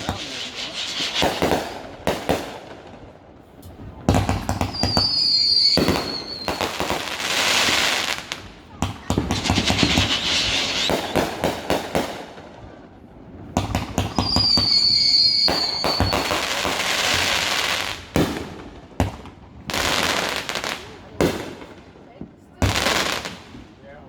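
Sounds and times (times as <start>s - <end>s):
whistling firework: 0.0s - 2.5s, 4.0s - 12.4s, 13.6s - 18.4s
firework bangs and crackling: 0.0s - 24.0s.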